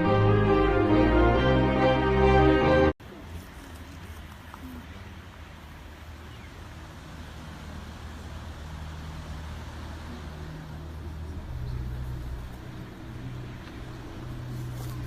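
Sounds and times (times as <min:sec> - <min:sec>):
engine humming: 0:00.0 - 0:02.9, 0:07.3 - 0:15.0.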